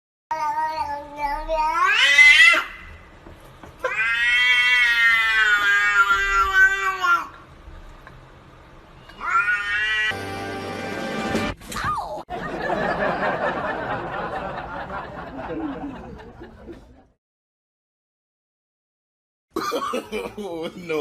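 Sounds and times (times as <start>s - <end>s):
cat yowling: 1.5s - 2.8s, 3.8s - 7.3s, 9.1s - 10.2s.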